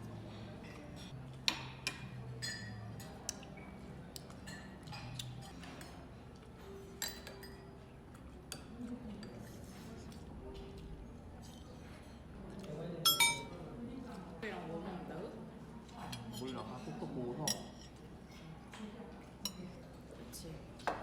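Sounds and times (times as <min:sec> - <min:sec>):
cutlery and tableware clinking: 0:04.5 - 0:06.0, 0:06.6 - 0:08.6, 0:13.1 - 0:13.5, 0:16.0 - 0:19.7.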